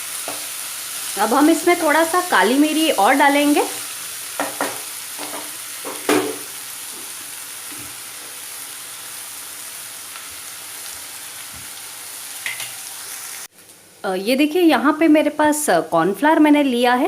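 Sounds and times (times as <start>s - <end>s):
food sizzling in a pan: 0.0s - 14.0s
utensil knocking against pan: 4.4s - 6.5s.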